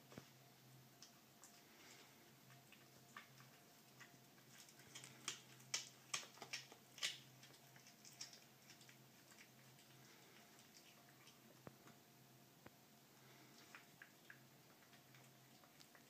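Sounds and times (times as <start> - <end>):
wet chewing ticks: 1.0 - 12.0, 13.4 - 16.0
cat crunching bird bones: 3.1 - 9.7.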